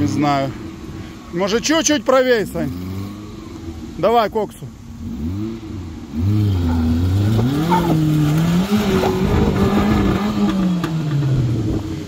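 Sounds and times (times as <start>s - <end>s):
car engine revving hard: 4.9s - 11.8s.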